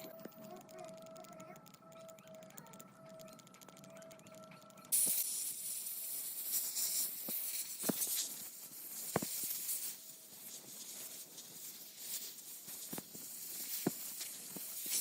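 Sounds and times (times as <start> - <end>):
sharp clicks: 0.0 - 5.2
spray hiss: 4.9 - 15.0.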